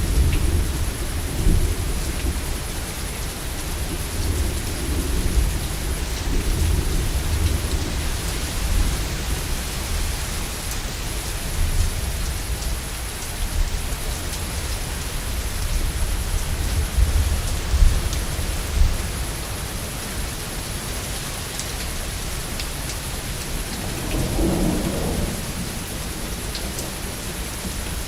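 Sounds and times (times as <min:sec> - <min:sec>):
heavy rain: 0:00.0 - 0:28.0
low thunder rumble: 0:23.2 - 0:28.0.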